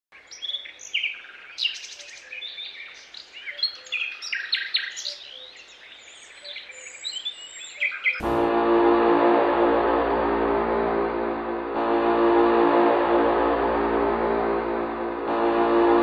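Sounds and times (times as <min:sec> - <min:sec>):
songbirds chirping and singing: 0:00.2 - 0:08.2.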